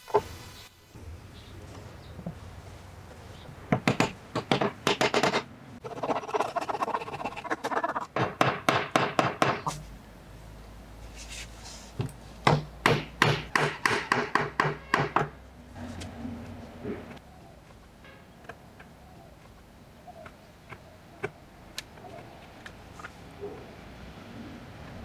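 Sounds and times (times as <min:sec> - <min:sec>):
wood scraping: 0:01.6 - 0:10.0, 0:11.0 - 0:12.4, 0:14.2 - 0:23.3
hammer blows on wood: 0:12.4 - 0:15.4.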